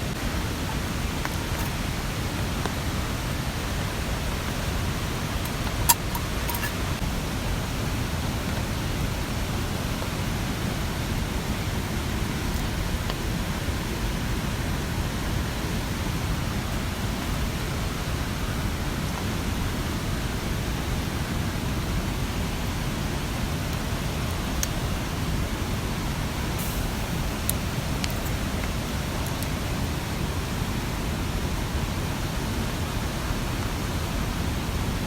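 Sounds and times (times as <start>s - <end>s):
mountain stream rushing: 0.0s - 35.0s.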